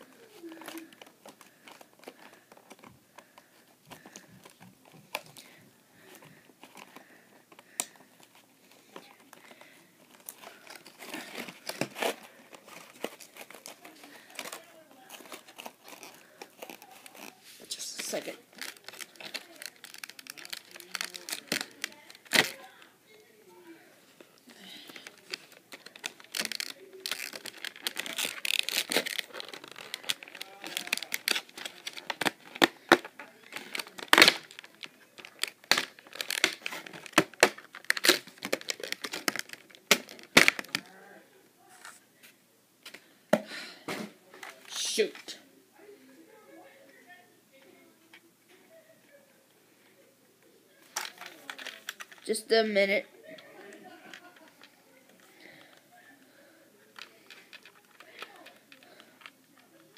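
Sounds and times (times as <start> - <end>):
packaging rustling and clicking: 0.4 - 17.4, 18.1 - 22.9, 24.9 - 40.9, 50.8 - 52.3, 57.0 - 59.9.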